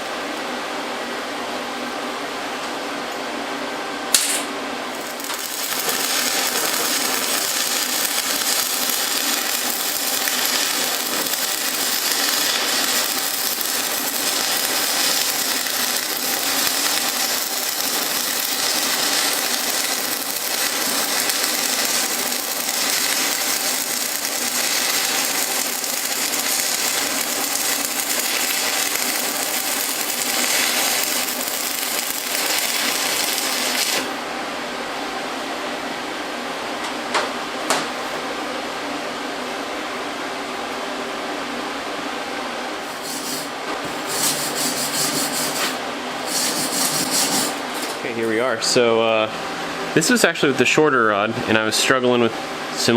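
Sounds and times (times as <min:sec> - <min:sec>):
arc welding crackling hiss: 0:04.1 - 0:34.2, 0:42.8 - 0:48.5.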